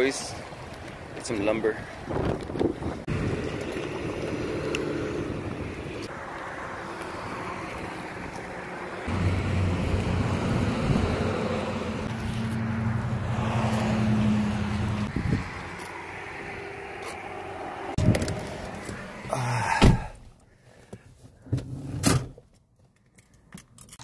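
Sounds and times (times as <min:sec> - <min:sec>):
wind noise on microphone: 0:02.0 - 0:06.1, 0:10.3 - 0:11.4, 0:15.0 - 0:15.7.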